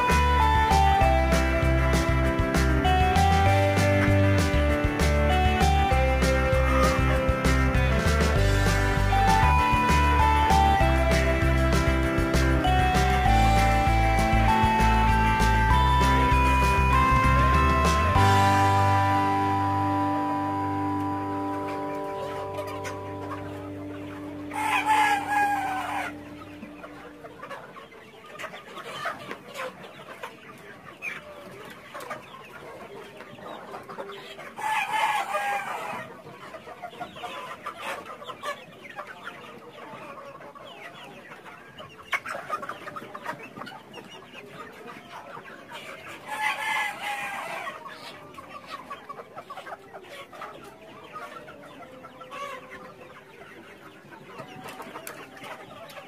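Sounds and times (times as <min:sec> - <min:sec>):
chickens clucking: 0:00.0 - 0:56.0
rooster crowing: 0:24.5 - 0:26.2.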